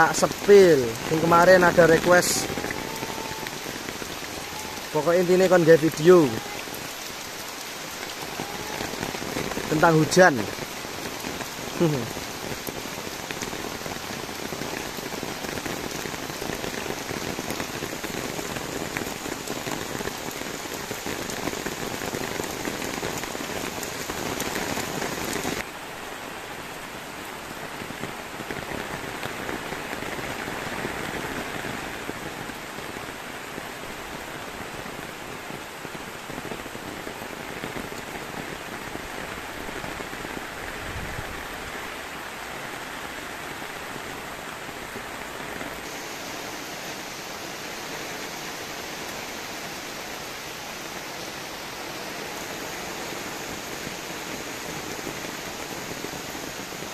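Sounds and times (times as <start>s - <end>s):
rain falling: 0.0s - 56.9s.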